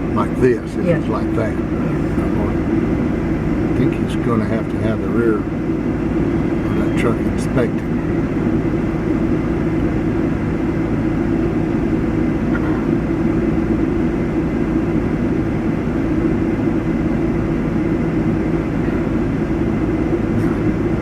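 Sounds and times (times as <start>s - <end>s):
engine idling hum: 0.0s - 21.0s.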